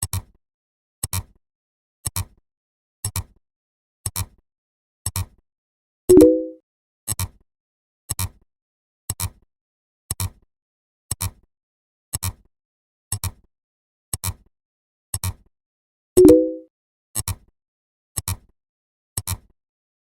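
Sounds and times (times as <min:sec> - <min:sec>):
low chord tone: 0:06.1 - 0:06.6, 0:16.2 - 0:16.6.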